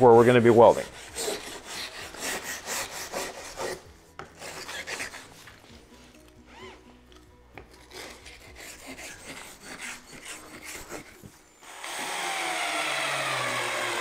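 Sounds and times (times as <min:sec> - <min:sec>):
cordless drill driving screw: 0:11.6 - 0:14.0.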